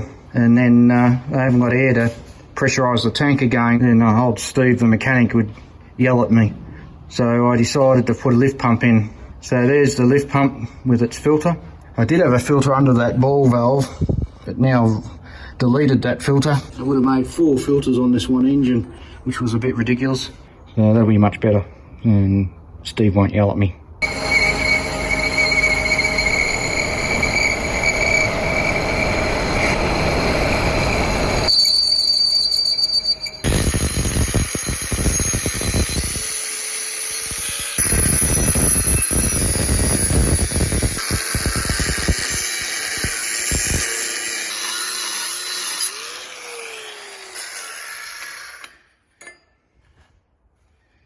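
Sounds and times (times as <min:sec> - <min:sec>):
metalworking power tool grinding: 0:24.0 - 0:49.4.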